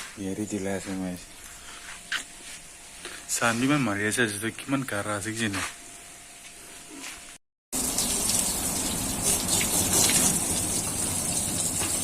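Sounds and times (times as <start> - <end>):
water gushing from a tap: 7.8 - 12.0.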